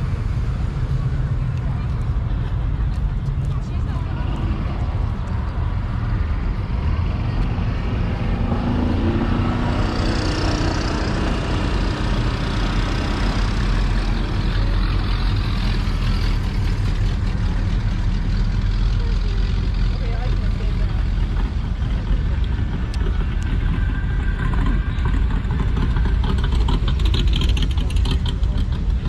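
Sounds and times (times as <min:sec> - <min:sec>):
vehicle engine rumbling: 0:00.0 - 0:29.0.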